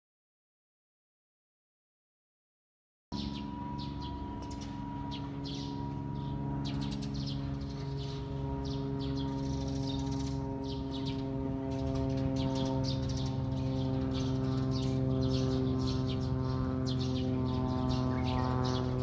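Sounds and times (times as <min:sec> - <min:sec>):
small birds chirping: 0:03.2 - 0:19.0
steady droning hum: 0:03.2 - 0:19.0.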